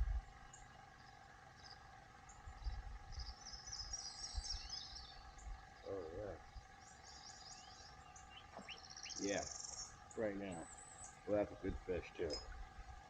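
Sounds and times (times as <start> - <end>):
low rumbling: 0.0 - 0.4
faint hum: 0.0 - 13.0
songbirds chirping and trilling: 0.0 - 13.0.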